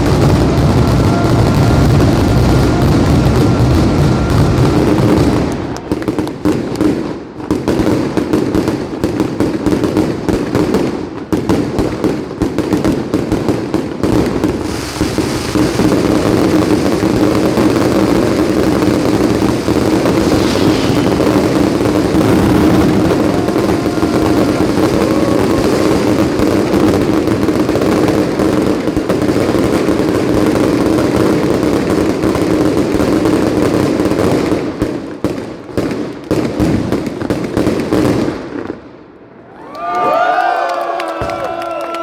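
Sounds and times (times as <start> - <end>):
firecracker bangs: 0.0 - 38.8.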